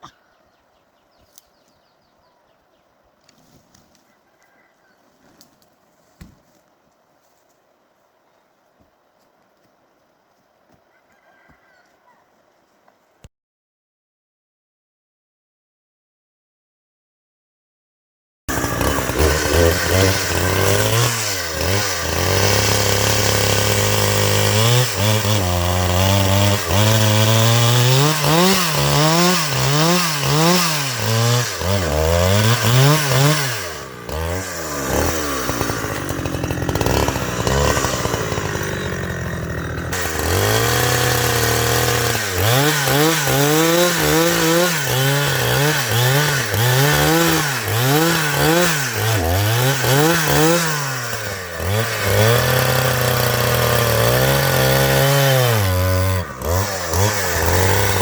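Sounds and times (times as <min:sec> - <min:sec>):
chainsaw revving and cutting wood: 0:18.5 - 0:58.0.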